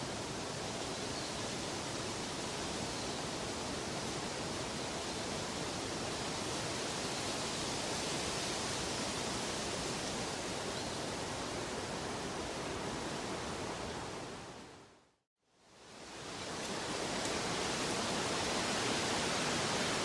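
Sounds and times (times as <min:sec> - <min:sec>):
rushing water: 0:00.0 - 0:14.9, 0:15.8 - 0:20.0.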